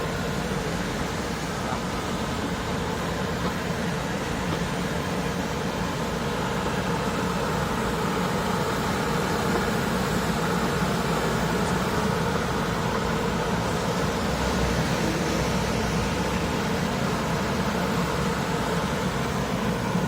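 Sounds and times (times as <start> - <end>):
electric sweeper humming: 6.8 - 20.0.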